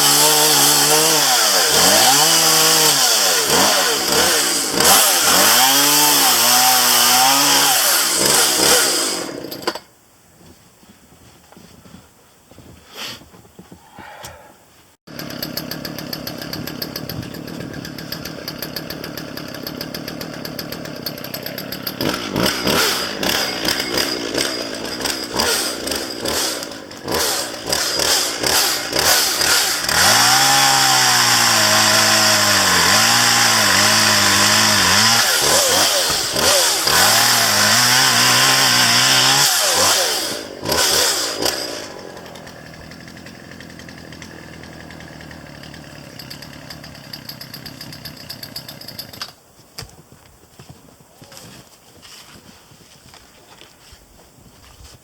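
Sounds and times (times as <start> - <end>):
chainsaw revving and cutting: 0.0 - 9.8, 15.1 - 49.2.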